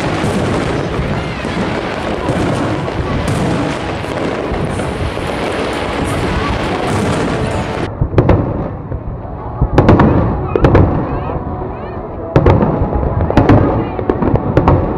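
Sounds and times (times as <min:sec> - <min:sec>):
fireworks bangs and crackles: 0:00.0 - 0:14.9.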